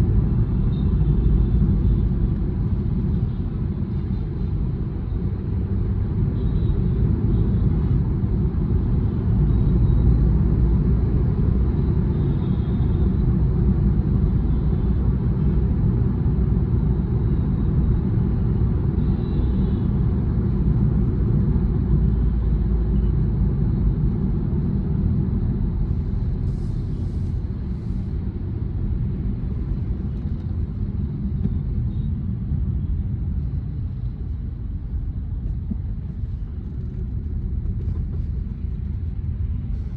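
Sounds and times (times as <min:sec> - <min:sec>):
road and engine rumble in car: 0:00.0 - 0:39.9.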